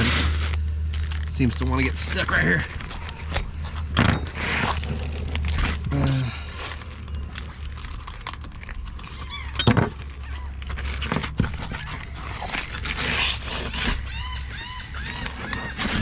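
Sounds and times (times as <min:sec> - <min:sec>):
low rumble: 0:00.0 - 0:16.0
birds honking: 0:11.5 - 0:16.0.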